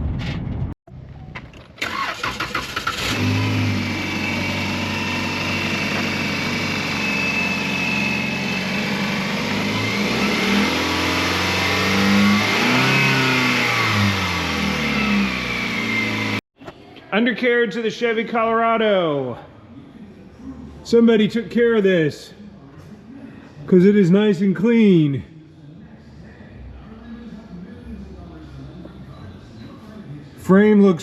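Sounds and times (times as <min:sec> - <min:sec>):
engine starter cranking: 0:01.5 - 0:03.8
pickup engine idling and revving: 0:02.2 - 0:16.4.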